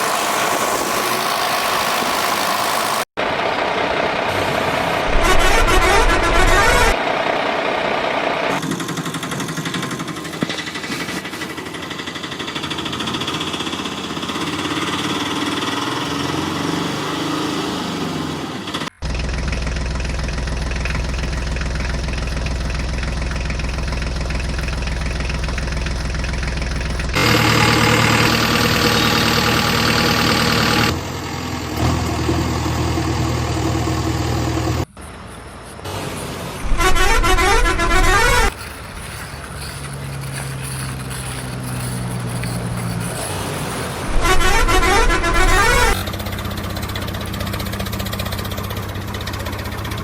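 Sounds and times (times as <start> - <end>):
horn-like vehicle tones: 4.3 - 7.0, 20.2 - 31.2, 36.6 - 43.4, 44.0 - 46.1.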